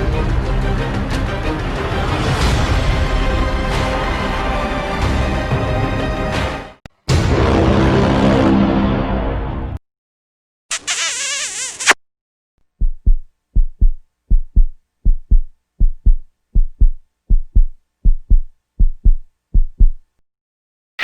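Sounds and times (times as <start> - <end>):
heartbeat thumps: 12.8 - 20.1.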